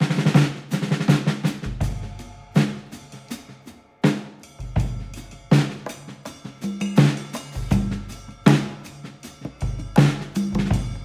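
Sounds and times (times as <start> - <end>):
tom and snare drum runs: 0.0 - 3.0, 9.5 - 11.0
bass drum strikes: 9.6 - 11.0.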